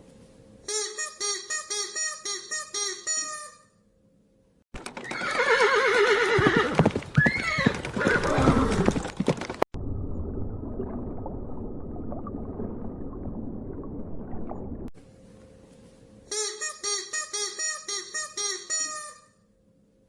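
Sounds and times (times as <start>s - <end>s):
horse whinnying: 5.0s - 9.2s.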